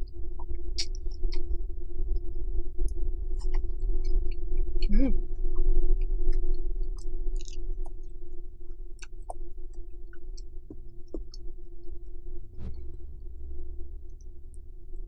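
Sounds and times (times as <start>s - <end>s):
steady electrical hum: 0.0s - 15.0s
chewing noodles: 6.3s - 11.5s.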